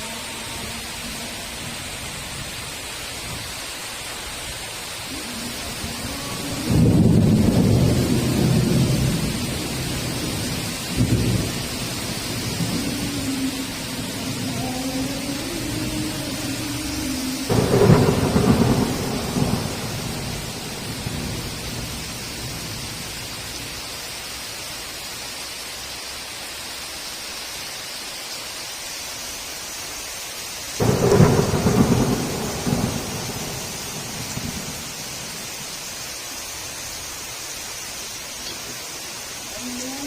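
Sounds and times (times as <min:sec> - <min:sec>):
heavy rain hissing: 0:00.0 - 0:40.0
thunder claps rumbling: 0:05.0 - 0:23.2, 0:30.8 - 0:35.9.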